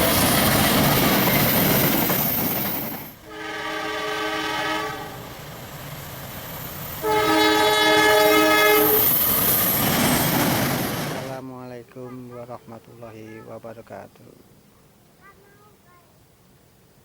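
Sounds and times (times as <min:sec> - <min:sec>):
train wheels running past: 0:00.0 - 0:11.4
diesel locomotive horn blasts: 0:03.2 - 0:05.3, 0:07.0 - 0:09.1.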